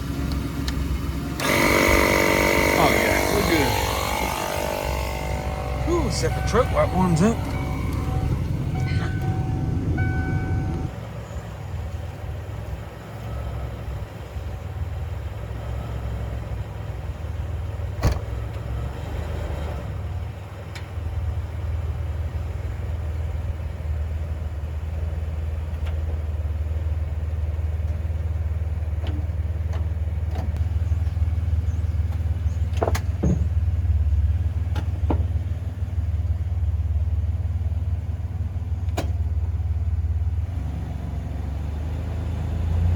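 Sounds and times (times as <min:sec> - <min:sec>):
truck engine idling: 0:00.0 - 0:42.9.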